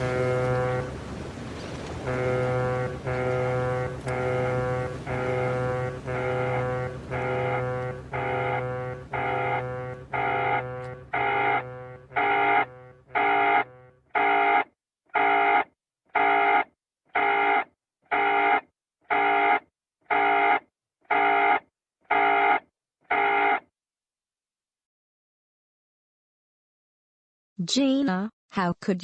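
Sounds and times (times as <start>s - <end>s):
electronic alarm buzzer beeping: 2.8s - 23.6s.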